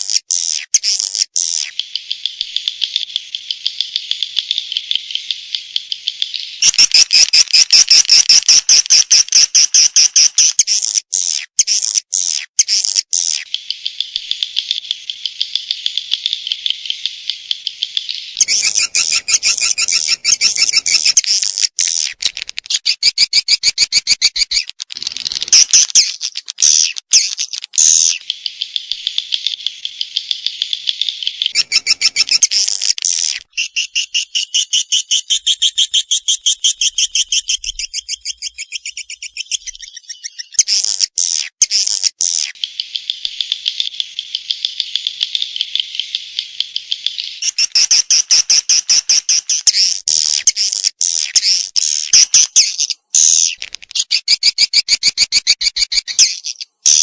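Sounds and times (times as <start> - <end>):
swiftlet calls rapid high chirps: 6.5 - 10.9, 18.3 - 21.6, 31.5 - 33.0, 47.3 - 54.2.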